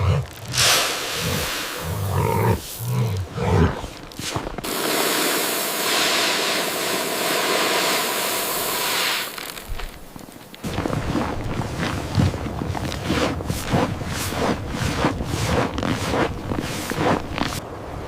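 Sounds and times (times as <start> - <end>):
animal growling: 0.0 - 4.0
steady rushing hiss: 0.0 - 11.2.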